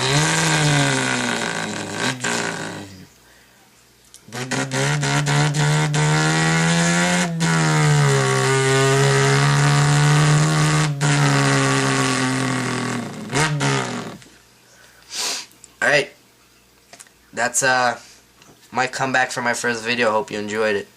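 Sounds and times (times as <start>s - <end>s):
man imitating engine drone: 0.0s - 3.1s, 4.2s - 14.3s.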